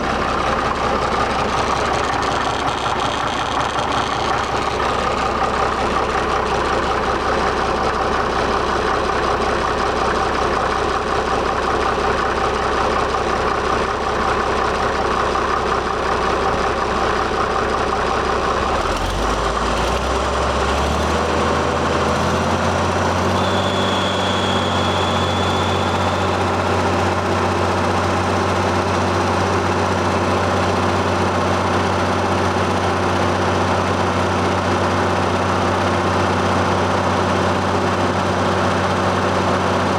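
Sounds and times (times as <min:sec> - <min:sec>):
tractor engine idling: 0:00.0 - 0:39.9
high whistle: 0:22.9 - 0:28.1.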